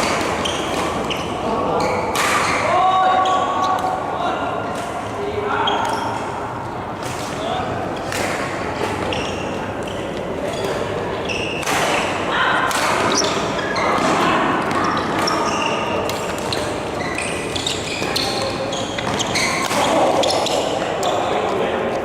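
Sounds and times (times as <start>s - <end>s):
shoes squeaking on court: 0.0s - 2.1s, 8.9s - 11.6s, 13.1s - 21.4s.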